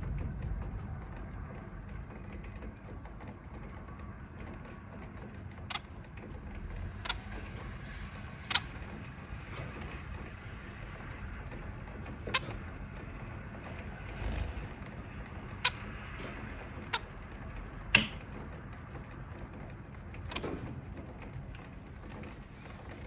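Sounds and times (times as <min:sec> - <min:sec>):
thunder rumble: 0:00.0 - 0:15.6
rain: 0:00.0 - 0:16.4.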